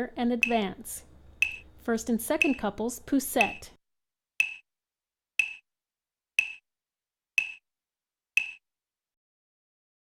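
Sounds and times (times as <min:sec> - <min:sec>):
sharp ringing ticks: 0:00.4 - 0:00.7, 0:01.4 - 0:01.7, 0:02.4 - 0:02.7, 0:03.4 - 0:03.7, 0:04.4 - 0:04.6, 0:05.4 - 0:05.6, 0:06.4 - 0:06.6, 0:07.4 - 0:07.6, 0:08.4 - 0:08.6.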